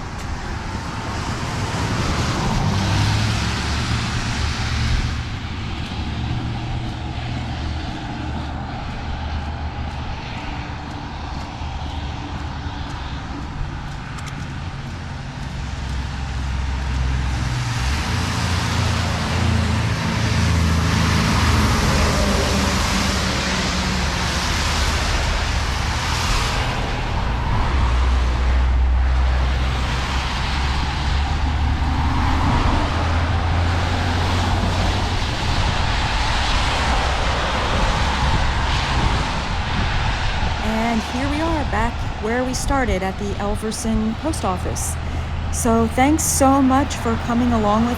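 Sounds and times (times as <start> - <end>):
vehicle engines running: 0.0 - 47.9
tyres hissing on wet road: 15.6 - 42.4.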